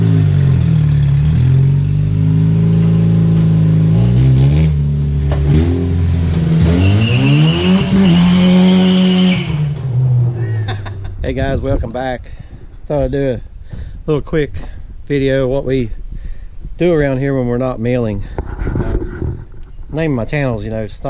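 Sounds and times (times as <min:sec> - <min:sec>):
car engine revving hard: 0:00.0 - 0:10.4.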